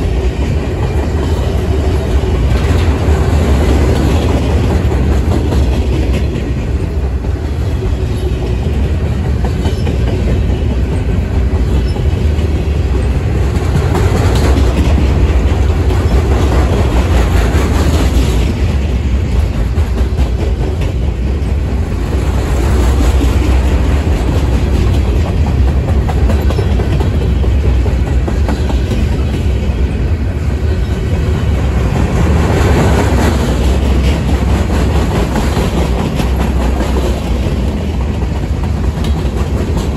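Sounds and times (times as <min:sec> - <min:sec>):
steel wheels rumbling on rail: 0:00.0 - 0:39.9
wheels clicking over rail joints: 0:00.0 - 0:39.9.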